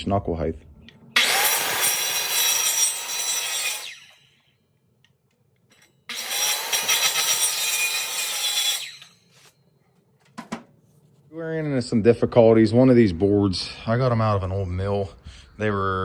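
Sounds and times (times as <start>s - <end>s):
electric power saw cutting wood: 1.2s - 4.3s, 6.1s - 9.5s.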